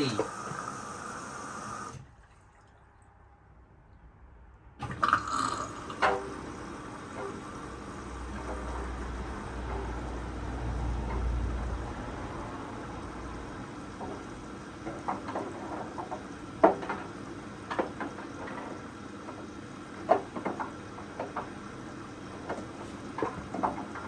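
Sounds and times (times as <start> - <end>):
water splashing in washing machine drum: 4.8 - 24.0.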